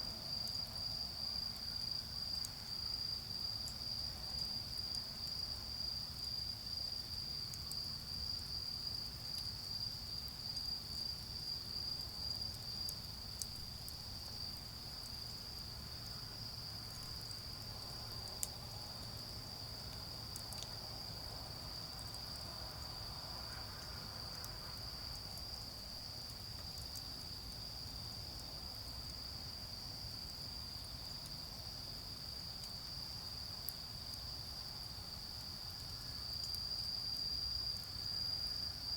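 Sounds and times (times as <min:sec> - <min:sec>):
crickets trilling: 0:00.2 - 0:38.9
charcoal fire crackles: 0:10.5 - 0:23.0.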